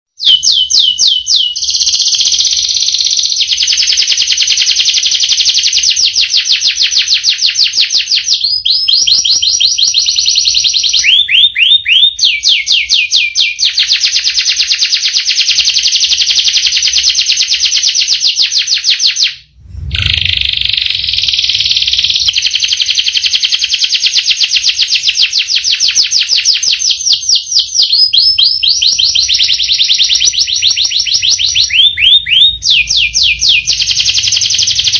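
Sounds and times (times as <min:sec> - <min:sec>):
canary singing trills: 0:00.1 - 0:34.9
low thud: 0:19.6 - 0:21.6.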